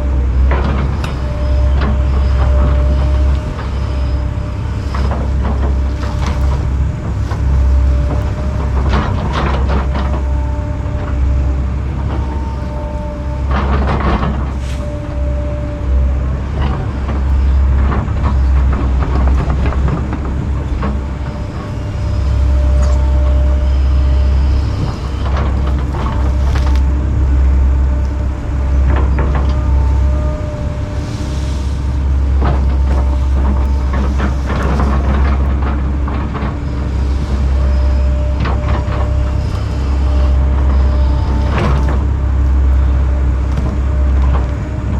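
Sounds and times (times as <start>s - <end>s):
excavator diesel engine humming: 0.0s - 44.9s
hydraulic whine: 0.0s - 44.9s
wood cracking and crunching: 25.4s - 27.0s.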